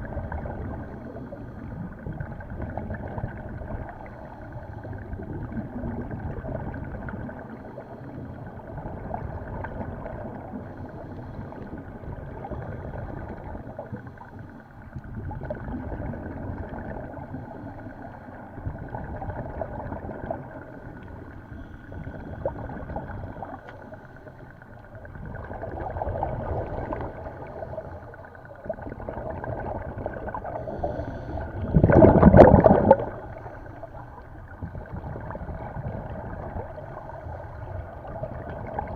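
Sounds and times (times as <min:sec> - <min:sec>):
underwater bubbling: 0:00.0 - 0:38.9
diver breathing through regulator: 0:10.5 - 0:14.9, 0:21.0 - 0:24.8, 0:30.3 - 0:34.4.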